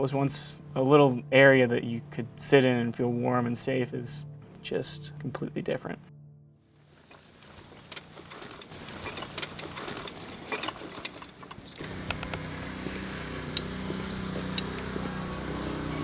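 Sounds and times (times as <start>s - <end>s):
engine running: 6.8s - 16.0s
knocks and clatter: 6.9s - 15.0s.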